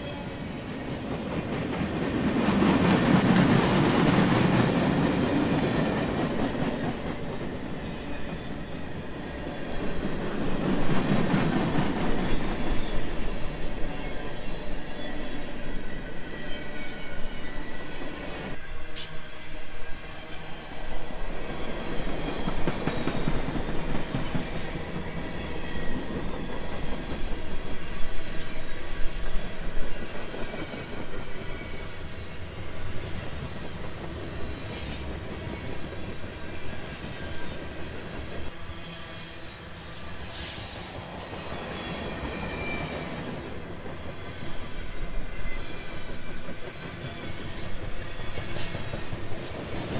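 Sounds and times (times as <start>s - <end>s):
train wheels rumbling on track: 0.0s - 49.9s
high-pitched wheel squeals: 36.5s - 43.1s.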